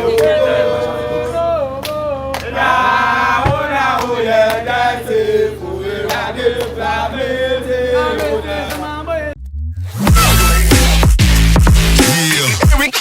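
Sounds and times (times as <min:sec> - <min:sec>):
men singing a chant: 0:00.0 - 0:09.4.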